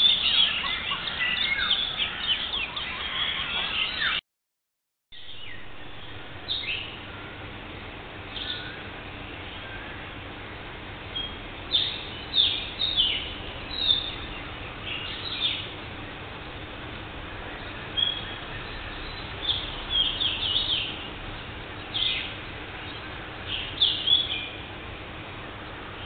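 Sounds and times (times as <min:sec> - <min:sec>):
birds calling: 0:00.0 - 0:04.2, 0:08.3 - 0:10.3, 0:11.0 - 0:16.7, 0:17.3 - 0:24.8
steady background noise: 0:00.0 - 0:04.2, 0:05.2 - 0:26.0.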